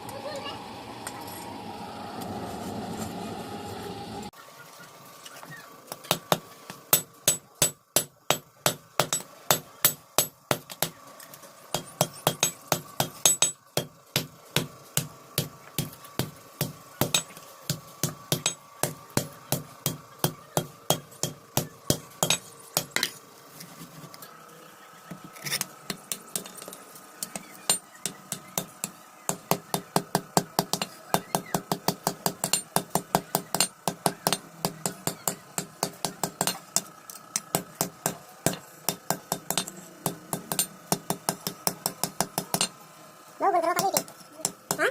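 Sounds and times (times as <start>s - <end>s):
hammer striking iron on anvil: 6.1s - 11.0s, 11.7s - 23.1s, 25.9s - 26.6s, 27.2s - 42.8s.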